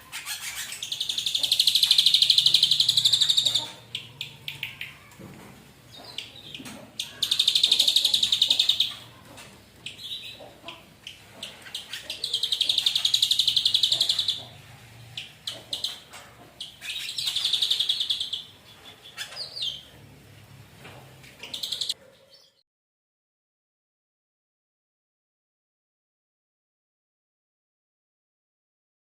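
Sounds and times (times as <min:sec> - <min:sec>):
bird singing fast trills: 0:00.0 - 0:05.0, 0:11.7 - 0:14.5.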